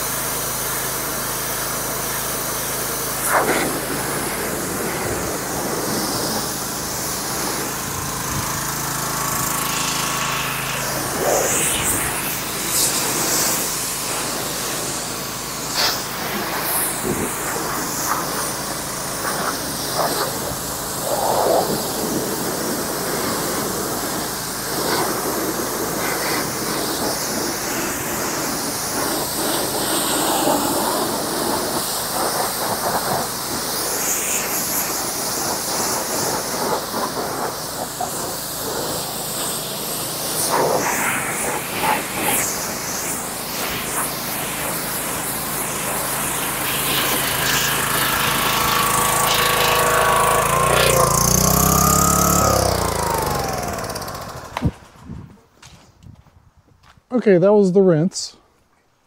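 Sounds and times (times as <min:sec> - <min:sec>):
pressure washer spraying: 0:00.0 - 0:54.8.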